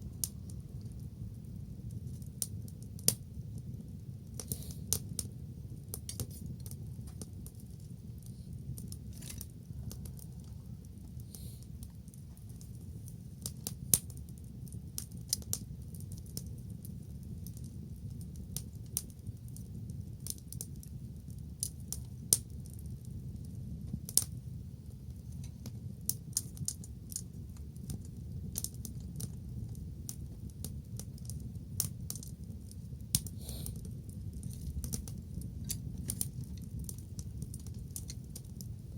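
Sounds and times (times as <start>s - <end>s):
bonfire crackling: 0.0s - 38.9s.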